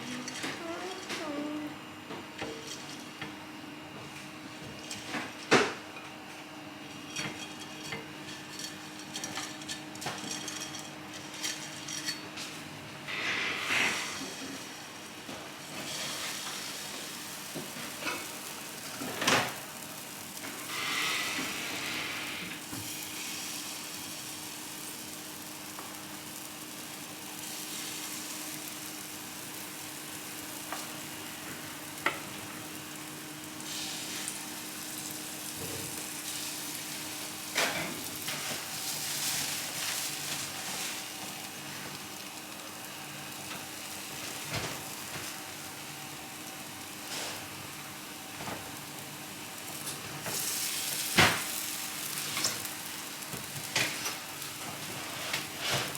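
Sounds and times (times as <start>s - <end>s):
food sizzling in a pan: 11.3s - 55.9s.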